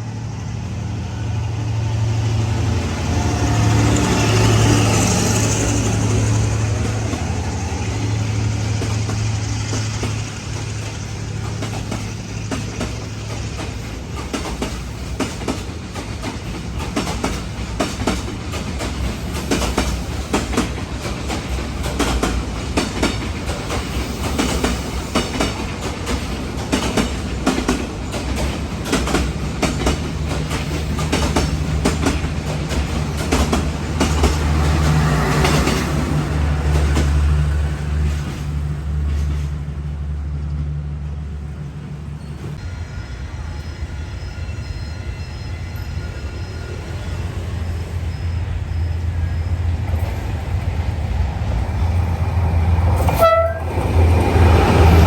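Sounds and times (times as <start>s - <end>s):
train wheels clacking over rail joints: 3.2s - 39.8s.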